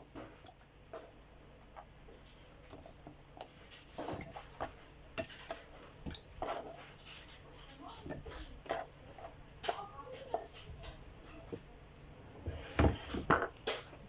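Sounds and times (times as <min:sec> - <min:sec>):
utensils and dishes clinking: 0:02.8 - 0:11.8.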